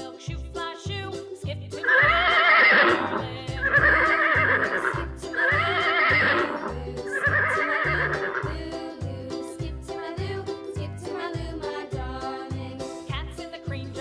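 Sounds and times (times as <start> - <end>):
children's music with steady beat: 0.0 - 14.0
horse whinnying: 1.9 - 8.5.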